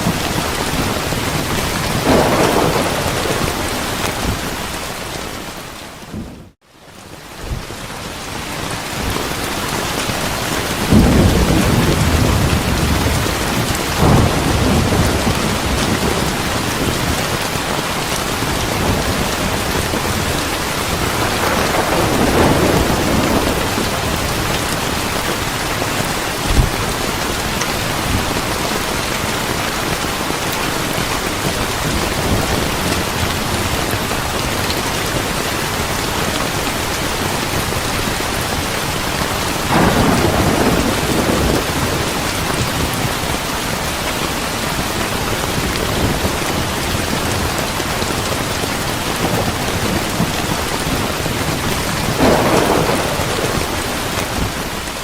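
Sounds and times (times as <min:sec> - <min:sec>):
thunder rumbling: 0:00.0 - 0:06.6, 0:09.0 - 0:55.0
heavy rain: 0:00.0 - 0:55.0.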